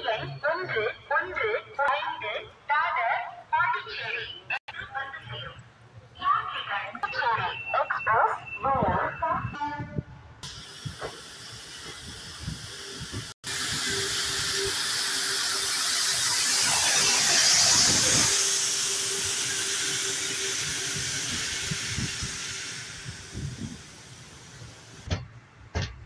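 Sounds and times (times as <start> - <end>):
train rushing hiss: 10.4 - 25.1.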